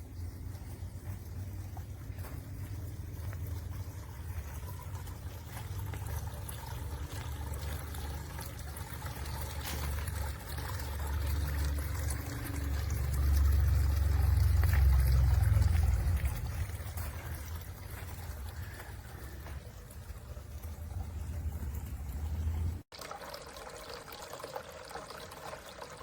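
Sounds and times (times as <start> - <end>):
fountain water pouring and trickling: 0.0 - 26.0
low rumble: 11.2 - 22.8.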